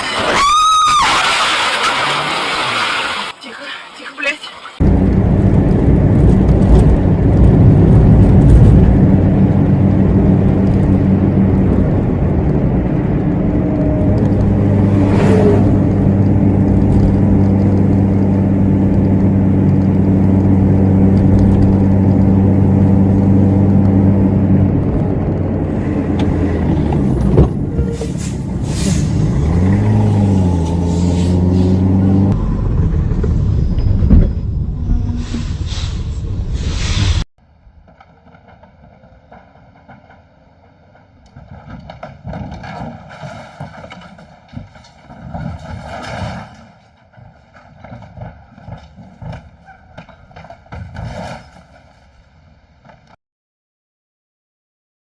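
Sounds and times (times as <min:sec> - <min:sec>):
car engine running: 0:04.8 - 0:35.0
road noise inside car: 0:04.8 - 0:37.2.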